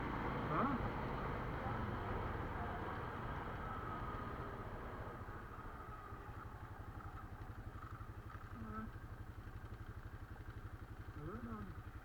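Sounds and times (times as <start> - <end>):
quad bike engine idling: 0.0 - 12.0.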